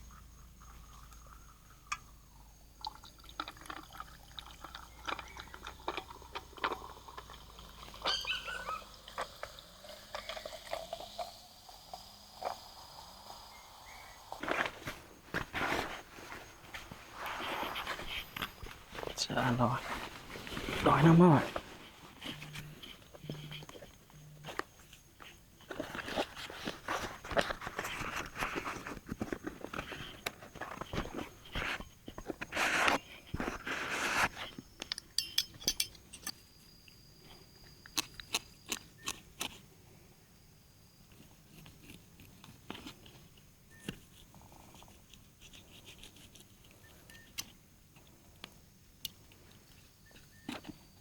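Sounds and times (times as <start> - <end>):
chewing and crunching food: 2.7 - 11.4, 19.9 - 33.9, 37.5 - 40.0.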